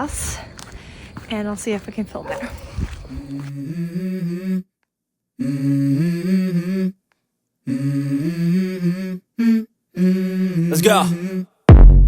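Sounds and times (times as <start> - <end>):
hummed vocal melody: 3.1 - 4.8, 5.4 - 12.0.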